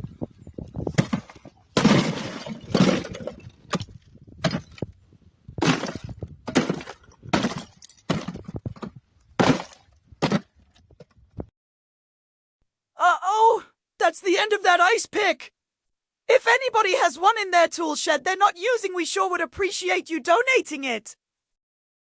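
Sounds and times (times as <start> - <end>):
ice pick breaking ice: 1.0 - 4.8, 5.6 - 8.5, 9.4 - 10.5.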